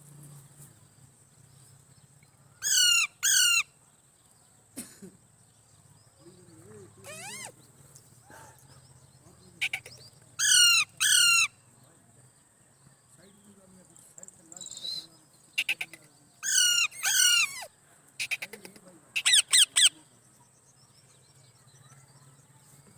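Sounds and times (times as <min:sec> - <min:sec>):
parrot screeching: 0:02.6 - 0:03.7, 0:07.1 - 0:07.5, 0:10.4 - 0:11.5, 0:15.6 - 0:18.4, 0:19.2 - 0:19.9.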